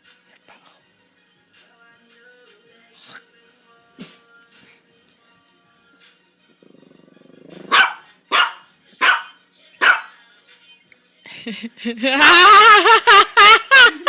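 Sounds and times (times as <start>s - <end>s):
dog growling: 6.4s - 9.3s
dog barking: 7.5s - 10.2s.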